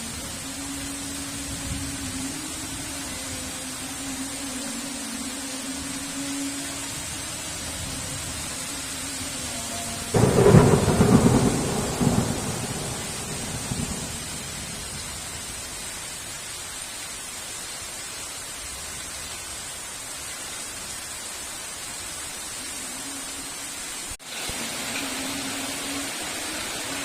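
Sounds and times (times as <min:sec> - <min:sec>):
heavy rain hiss: 0:00.0 - 0:27.0
thunderclap rumbling: 0:10.1 - 0:15.6.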